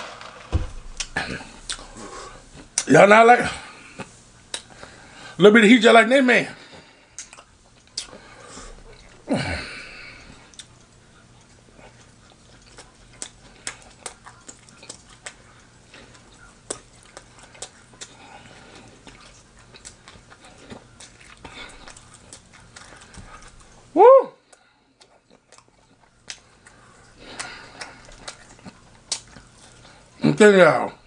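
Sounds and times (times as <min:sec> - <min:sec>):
chewing sandwich: 0:00.7 - 0:02.9, 0:03.5 - 0:05.2, 0:06.6 - 0:30.2
wet mouth clicks: 0:07.2 - 0:08.2.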